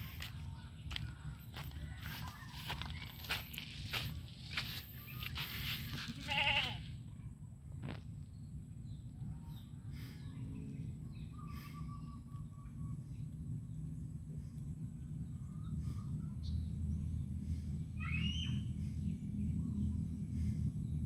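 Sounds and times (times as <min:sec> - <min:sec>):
steady low rumble: 0:00.0 - 0:21.0
goat bleating: 0:06.0 - 0:06.9.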